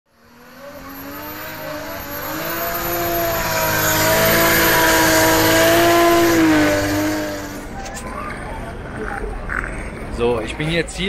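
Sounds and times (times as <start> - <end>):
car engine at high revs: 0.1 - 8.0.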